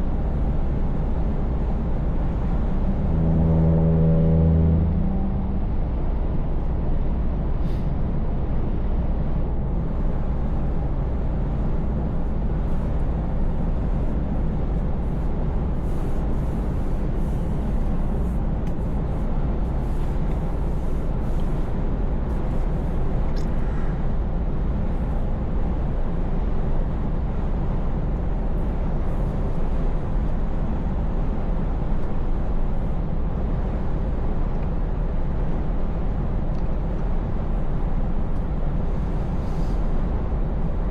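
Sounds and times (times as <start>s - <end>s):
tyre and road noise: 0.0s - 7.6s
truck diesel engine droning: 0.0s - 26.1s.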